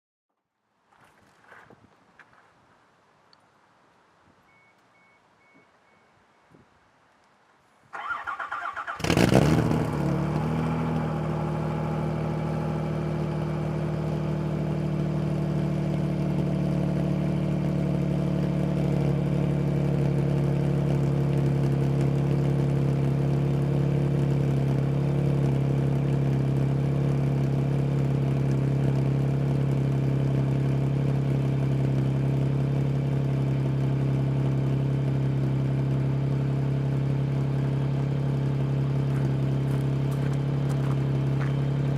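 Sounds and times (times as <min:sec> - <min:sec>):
car engine idling: 0:08.9 - 0:41.9.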